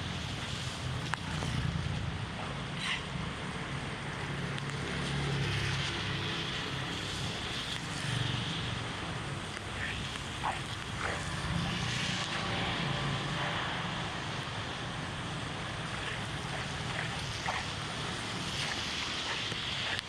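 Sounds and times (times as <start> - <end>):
heavy rain and floodwater rushing: 0.0 - 20.0
wind rumbling on microphone: 0.0 - 20.0.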